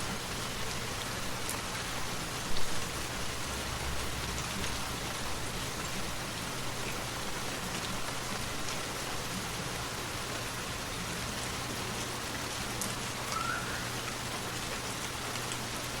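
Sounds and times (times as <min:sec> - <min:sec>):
steady rain falling: 0:00.0 - 0:16.0
faint rising chirp: 0:13.3 - 0:14.0.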